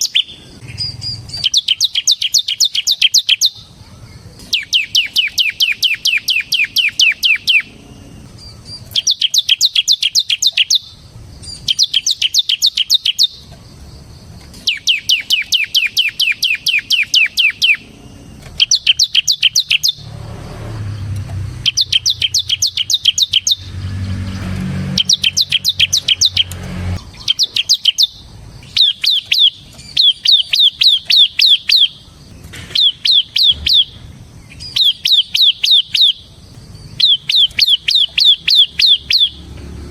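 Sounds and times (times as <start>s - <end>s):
bird singing rapid sharp notes: 0.0s - 39.9s
low hum: 17.8s - 27.4s.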